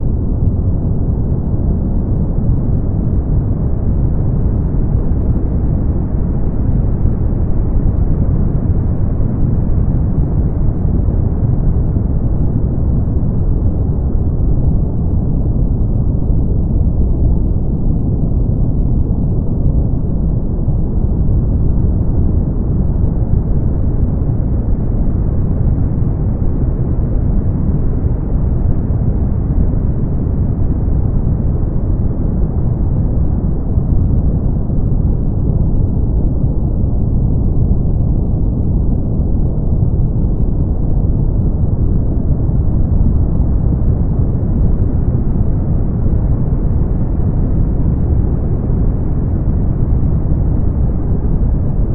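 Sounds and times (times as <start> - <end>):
deep rushing brown noise: 0.0 - 51.9.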